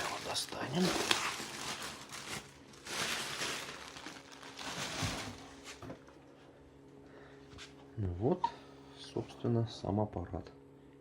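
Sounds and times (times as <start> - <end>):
plastic bag rustling: 0.0 - 6.2.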